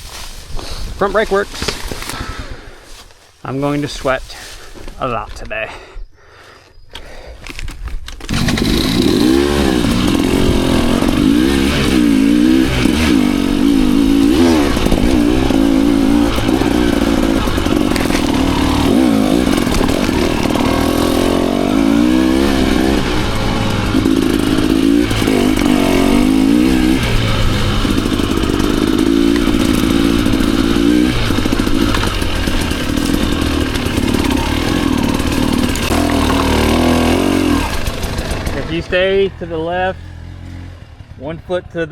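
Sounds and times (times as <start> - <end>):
dirt bike engine revving: 8.2 - 41.9.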